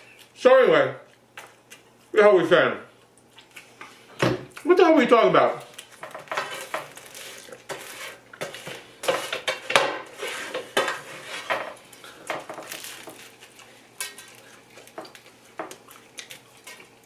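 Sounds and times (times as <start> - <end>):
food crunching: 1.0 - 2.1, 5.6 - 8.3, 11.8 - 17.0.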